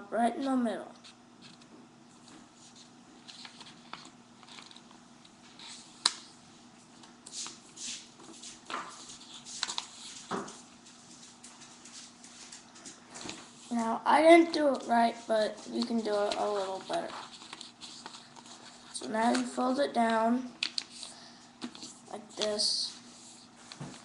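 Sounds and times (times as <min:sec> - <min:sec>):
paper rustling and scraping: 0:07.3 - 0:13.9, 0:15.5 - 0:19.5.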